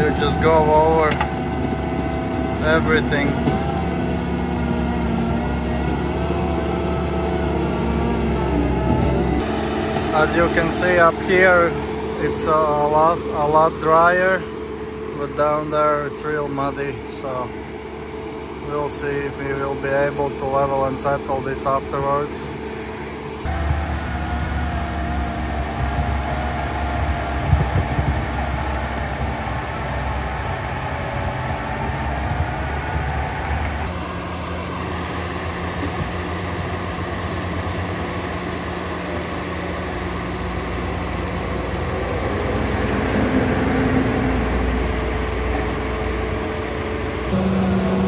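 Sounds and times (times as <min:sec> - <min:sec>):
rotor grinding stumps: 0:00.0 - 0:16.6
loader engine running: 0:00.0 - 0:48.0.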